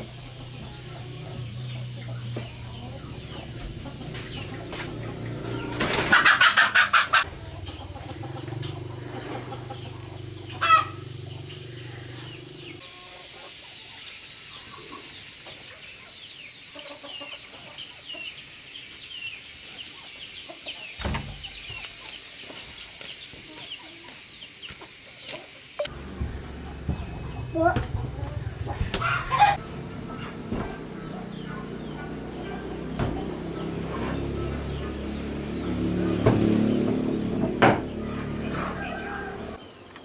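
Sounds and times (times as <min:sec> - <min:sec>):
chicks peeping: 0:00.0 - 0:39.8
chicken loud call: 0:00.1 - 0:12.8, 0:28.4 - 0:35.0, 0:38.0 - 0:39.6.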